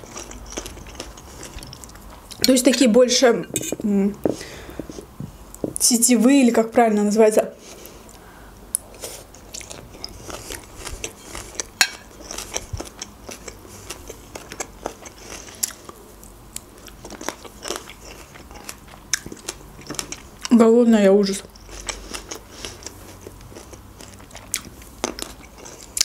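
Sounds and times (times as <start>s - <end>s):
chewing crunchy vegetables: 0.0s - 2.9s, 8.8s - 20.6s, 21.3s - 26.0s.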